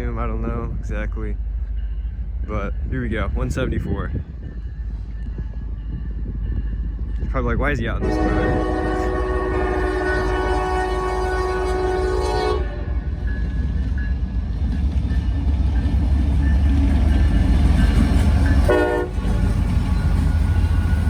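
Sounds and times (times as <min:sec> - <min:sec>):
low rumble of train: 0:00.0 - 0:21.0
train air horn: 0:08.0 - 0:13.1, 0:18.6 - 0:19.3.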